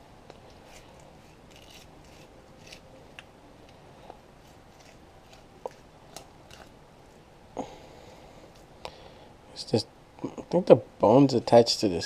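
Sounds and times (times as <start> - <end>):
knife scraping fish skin: 0.7 - 3.0, 4.4 - 6.7.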